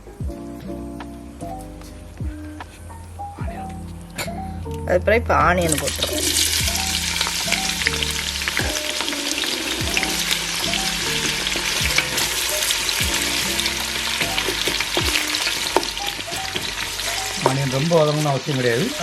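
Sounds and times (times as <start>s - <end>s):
onion sizzling in oil: 5.7s - 19.0s.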